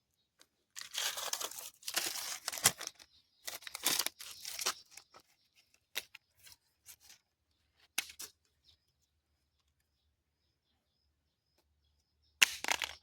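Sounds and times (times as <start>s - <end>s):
crackling and crunching: 0.7s - 5.2s.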